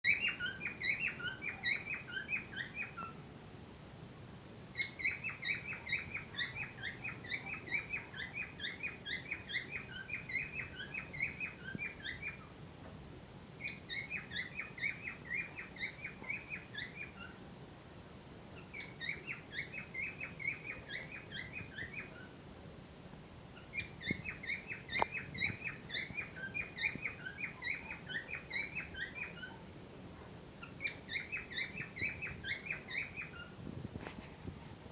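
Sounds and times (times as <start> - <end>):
cockatiels chirping rapidly: 0.1 - 3.2, 4.8 - 12.5, 13.6 - 17.4, 18.6 - 22.3, 23.6 - 29.6, 30.6 - 33.6.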